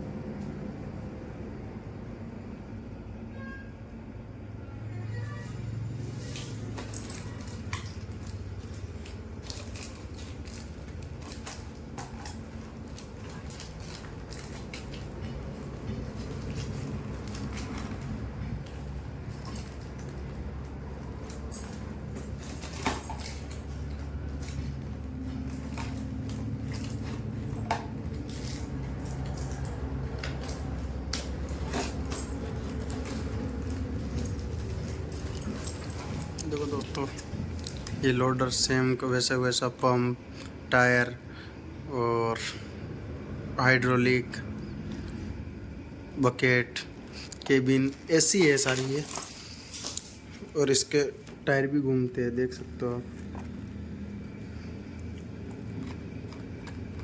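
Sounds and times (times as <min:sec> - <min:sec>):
steady low hum: 0:00.0 - 0:57.0
clicks and clinks of objects: 0:06.2 - 0:38.0, 0:47.2 - 0:50.5.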